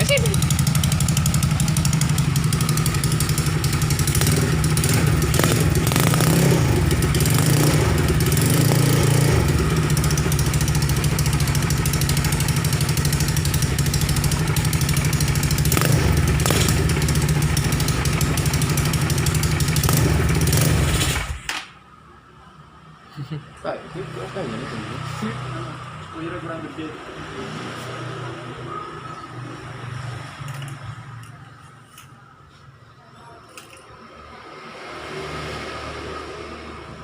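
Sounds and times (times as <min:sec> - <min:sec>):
motorcycle engine idling: 0:00.0 - 0:21.4.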